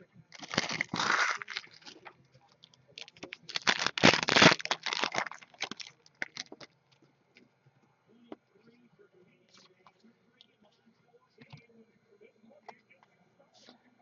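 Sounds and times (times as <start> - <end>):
card packaging rustling and crinkling: 0.4 - 2.1, 3.0 - 6.7.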